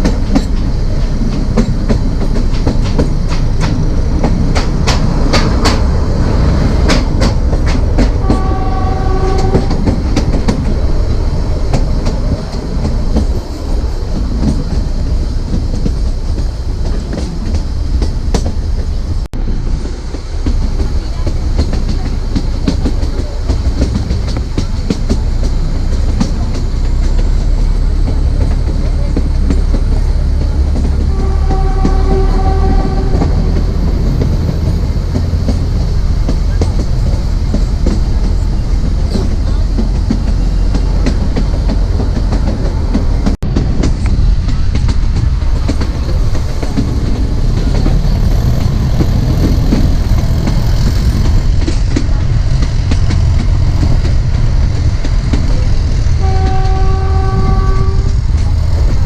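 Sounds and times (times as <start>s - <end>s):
clickety-clack of rail joints: 0.0s - 59.0s
train wheels rumbling: 0.0s - 59.0s
locomotive horn: 8.0s - 10.0s, 30.9s - 34.5s, 56.1s - 58.3s.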